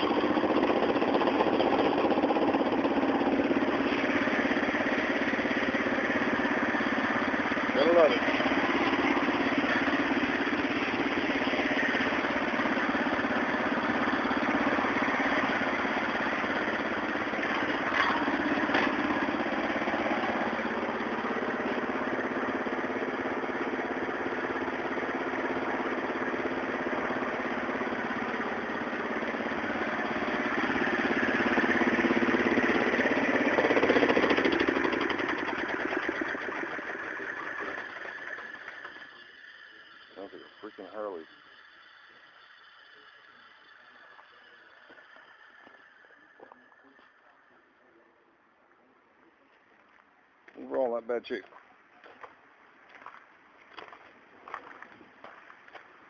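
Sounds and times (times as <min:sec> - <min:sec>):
small tractor engine running: 0:00.0 - 0:56.0.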